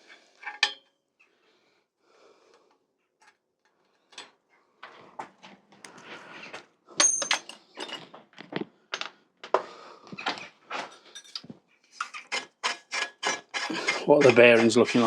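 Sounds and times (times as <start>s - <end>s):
ringing metal clink: 7.0s - 7.9s
metal clicks and clinks: 7.0s - 8.0s, 11.0s - 12.4s.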